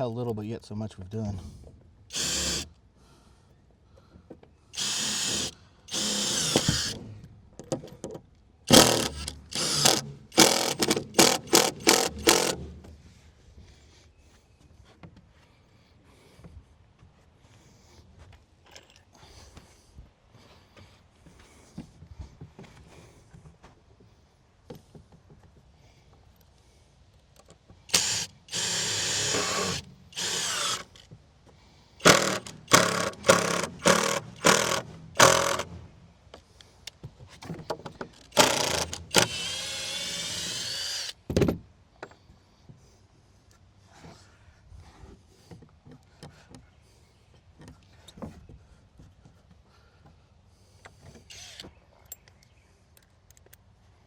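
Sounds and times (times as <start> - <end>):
power drill driving screws into wood: 2.1 - 2.7, 4.8 - 7.2, 8.7 - 12.9, 27.9 - 31.0, 32.0 - 35.9, 38.2 - 41.4, 51.2 - 51.8.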